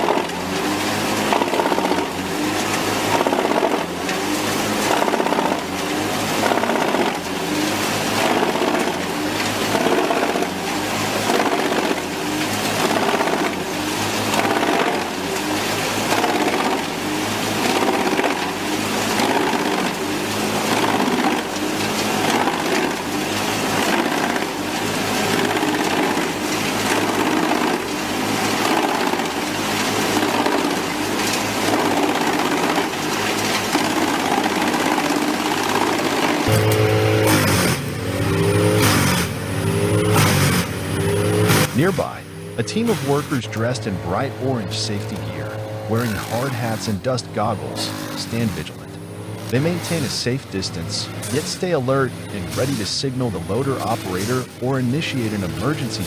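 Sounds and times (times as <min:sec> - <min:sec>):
wood chipper shredding logs: 0:00.0 - 0:56.0.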